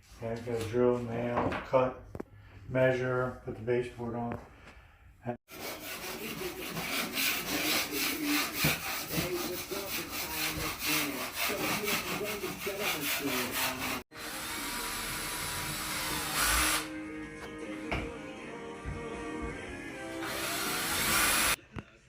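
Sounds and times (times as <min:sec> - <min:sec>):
hand tool scraping wood: 0:05.5 - 0:14.0.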